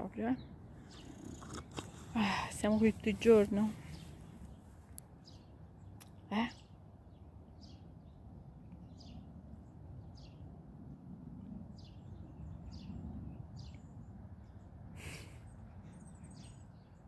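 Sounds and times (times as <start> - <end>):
low outdoor rumble: 0.0 - 16.4
bird chirping: 0.2 - 8.2, 15.8 - 17.0.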